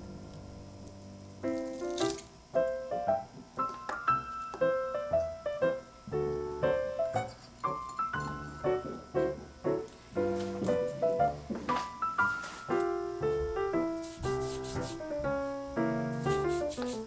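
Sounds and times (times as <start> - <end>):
piano melody of short notes: 2.6 - 17.0.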